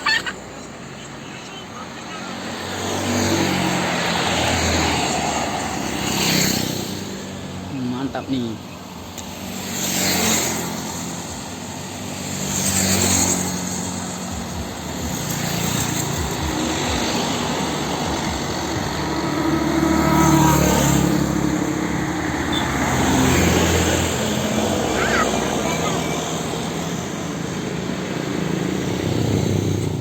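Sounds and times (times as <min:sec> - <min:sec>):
road vehicles passing: 0:00.0 - 0:30.0
heavy vehicle engine humming: 0:10.6 - 0:30.0.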